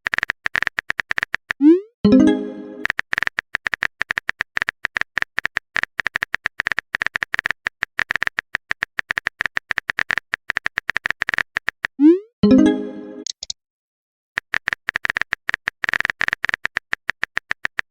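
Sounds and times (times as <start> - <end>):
phone keyboard typing clicks: 0.0 - 1.6, 2.8 - 12.0, 13.2 - 13.6, 14.4 - 17.9
message chime: 2.1 - 2.8, 12.4 - 13.3.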